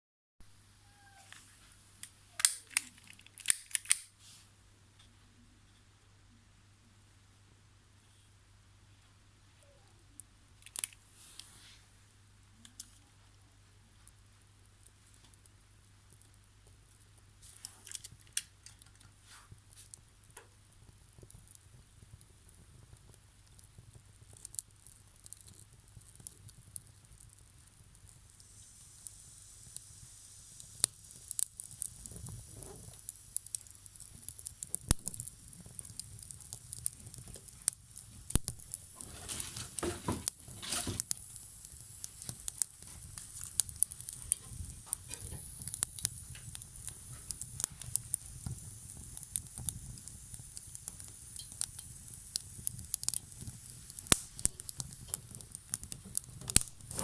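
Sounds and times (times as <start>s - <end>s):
faint hiss: 0.4s - 57.0s
wood fire crackling: 0.9s - 4.4s, 9.6s - 57.0s
rushing fire: 27.3s - 57.0s.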